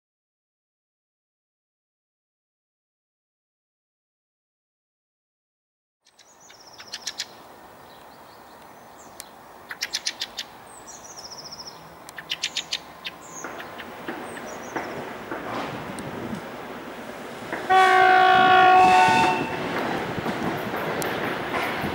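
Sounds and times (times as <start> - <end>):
small birds chirping: 6.0 - 15.2
freight train rumble: 6.4 - 21.9.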